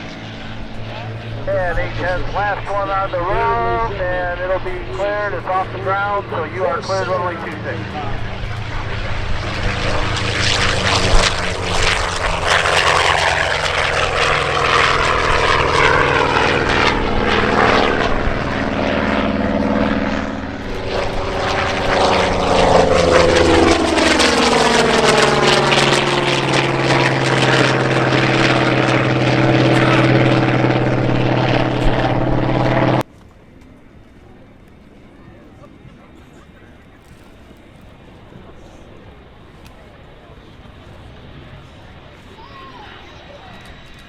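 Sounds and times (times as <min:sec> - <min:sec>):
propeller aircraft flying past: 0:00.0 - 0:44.0.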